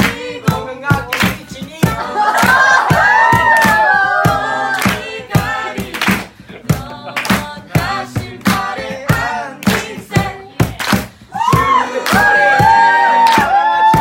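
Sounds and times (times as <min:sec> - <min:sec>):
group singing worship song: 0:00.0 - 0:14.0.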